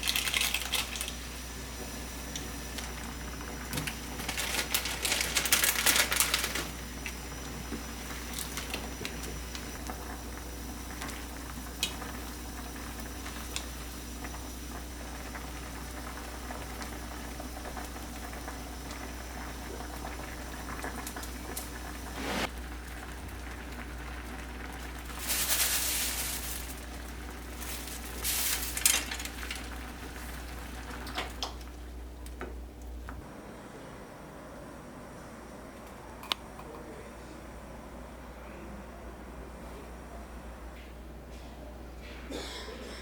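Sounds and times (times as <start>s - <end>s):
pot bubbling: 0.0s - 31.9s.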